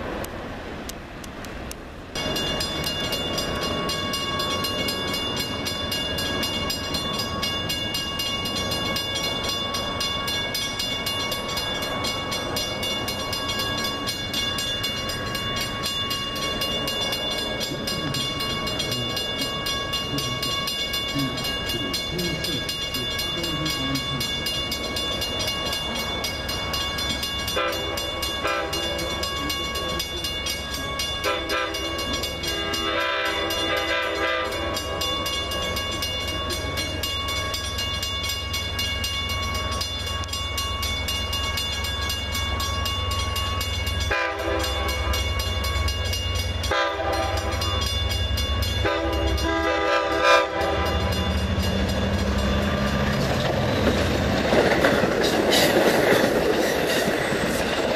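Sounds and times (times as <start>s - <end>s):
diesel train engine hum: 0.0s - 57.9s
train horn blasts: 27.5s - 29.0s, 31.2s - 34.8s, 44.1s - 45.1s, 46.6s - 47.8s, 48.8s - 51.2s.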